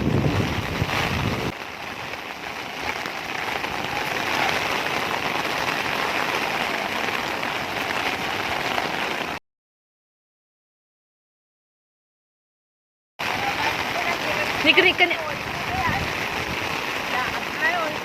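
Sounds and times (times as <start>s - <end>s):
heavy rain falling: 0.0s - 9.4s, 13.2s - 18.0s.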